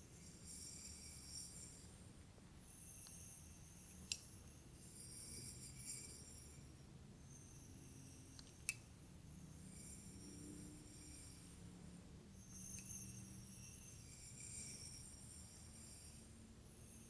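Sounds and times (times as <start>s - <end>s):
sharp light clicks: 4.1s - 4.3s, 8.4s - 8.8s.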